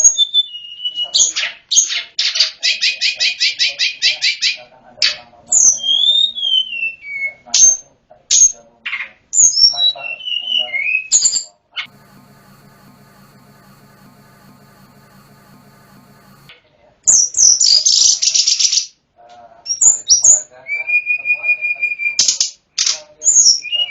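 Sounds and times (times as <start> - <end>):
faint hum: 11.9 - 16.5.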